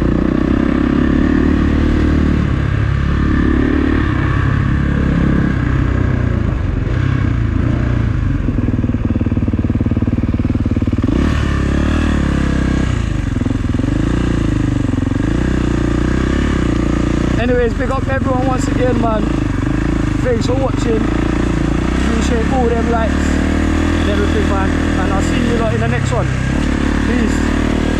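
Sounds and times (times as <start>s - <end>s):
dirt bike engine revving: 0.0s - 27.9s.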